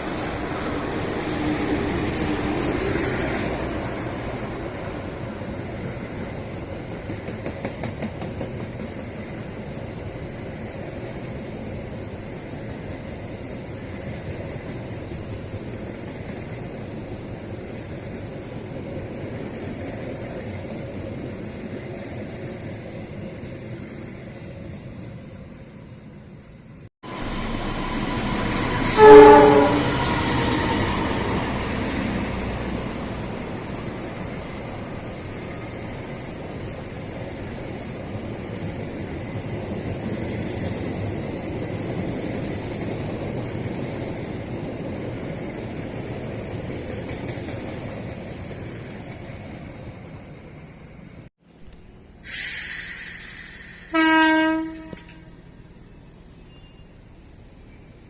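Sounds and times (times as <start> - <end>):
train rumbling on rails: 0.0 - 58.0
train horn blast: 27.0 - 31.8, 53.9 - 55.4
loud hiss: 27.0 - 33.0, 51.5 - 54.3.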